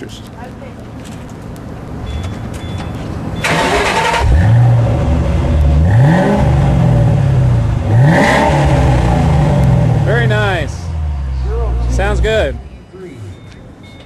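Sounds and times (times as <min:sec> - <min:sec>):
car engine starting idling and revving: 0:03.4 - 0:12.8.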